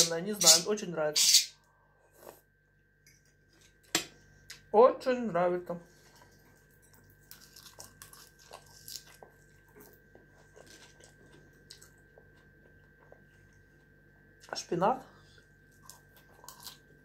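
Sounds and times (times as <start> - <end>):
chewing and biting food: 6.0 - 14.0, 15.5 - 17.0.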